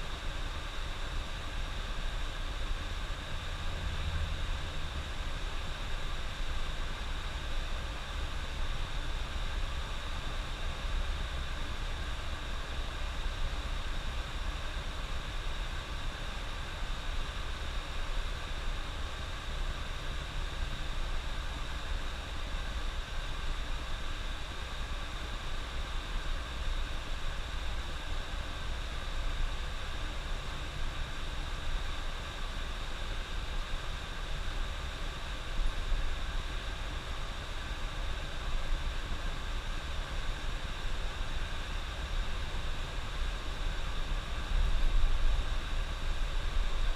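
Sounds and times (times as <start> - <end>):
constant hiss: 0.0 - 46.9
bus engine and road rumble: 3.3 - 5.7.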